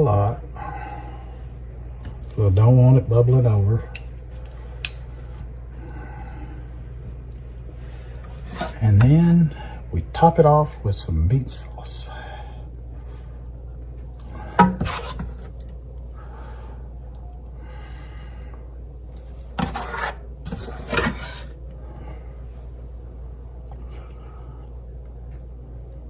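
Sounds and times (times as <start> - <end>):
utensil scraping dish: 8.3 - 8.8, 14.4 - 15.5, 19.6 - 21.6.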